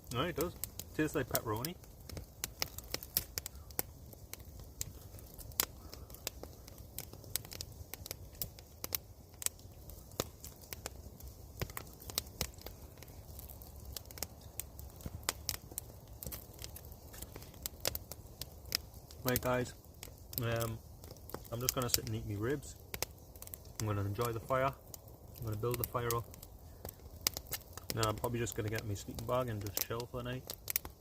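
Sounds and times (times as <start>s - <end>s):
campfire crackling: 0.0s - 31.0s.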